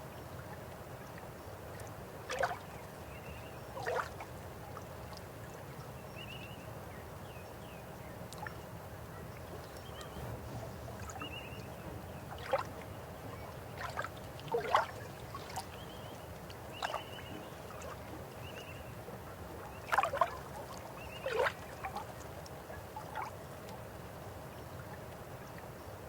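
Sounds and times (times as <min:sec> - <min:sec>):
river water flowing: 0:00.0 - 0:06.0, 0:07.8 - 0:26.0
water gurgles and splashes: 0:01.8 - 0:02.8, 0:03.7 - 0:04.5, 0:12.1 - 0:23.8.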